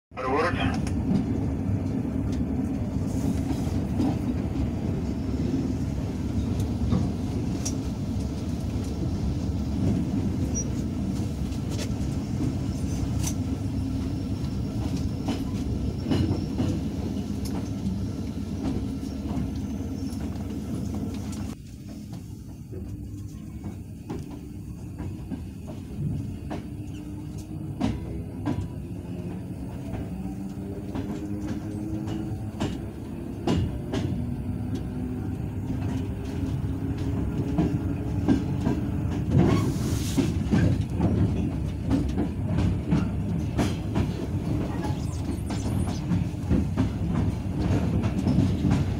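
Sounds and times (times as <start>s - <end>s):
train rumble inside carriage: 0.1s - 48.9s
wheels clicking over rail joints: 18.6s - 44.7s.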